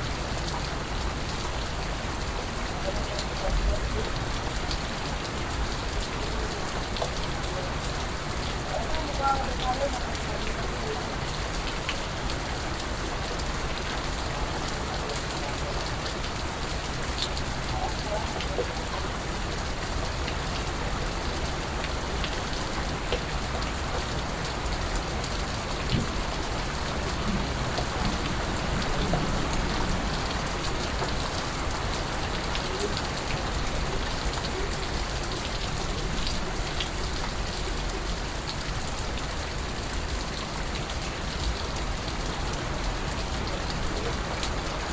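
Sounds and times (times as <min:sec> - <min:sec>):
rain falling on a surface: 0:00.0 - 0:44.9.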